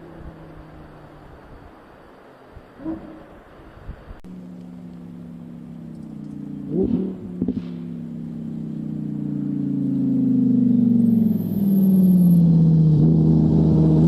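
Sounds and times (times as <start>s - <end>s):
car engine running: 4.3s - 14.0s.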